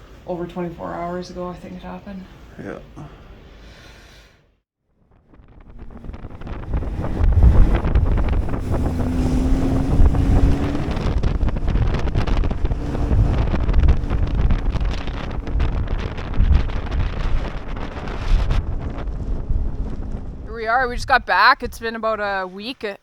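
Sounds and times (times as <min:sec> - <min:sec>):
low hum: 0:05.0 - 0:22.0
strong wind buffeting microphone: 0:05.1 - 0:22.4.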